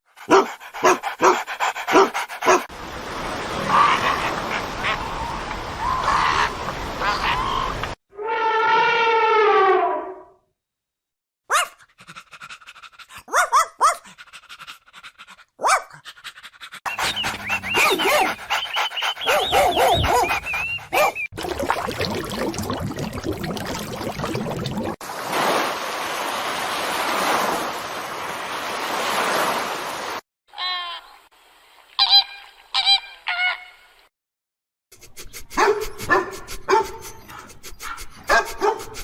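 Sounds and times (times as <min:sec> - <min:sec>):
dog panting: 0:00.2 - 0:02.7, 0:11.9 - 0:13.3, 0:14.0 - 0:21.3
dogs whimpering: 0:16.9 - 0:21.3
dogs whining and yipping: 0:16.9 - 0:21.3.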